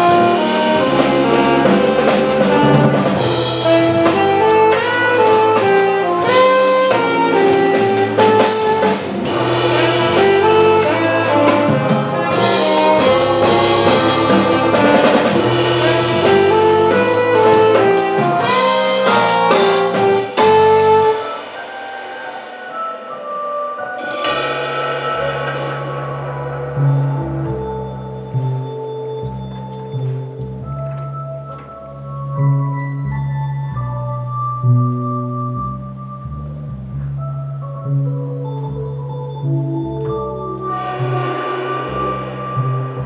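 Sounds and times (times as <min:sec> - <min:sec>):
saxophone: 0:00.0 - 0:31.1
drum kit with cymbals: 0:00.0 - 0:32.6, 0:39.6 - 0:43.0.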